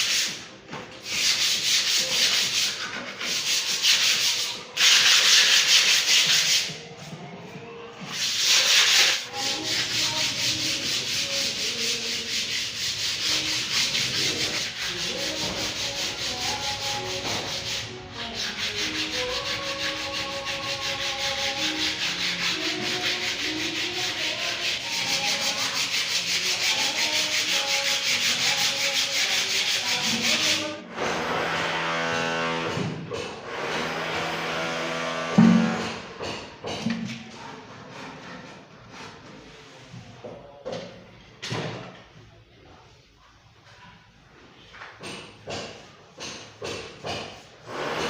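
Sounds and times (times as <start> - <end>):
sanding wood: 1.0 - 6.7, 8.1 - 30.7.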